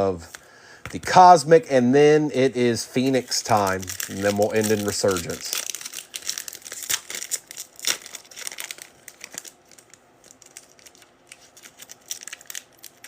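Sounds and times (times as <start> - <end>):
card pack wrapper crinkling: 3.0 - 13.0.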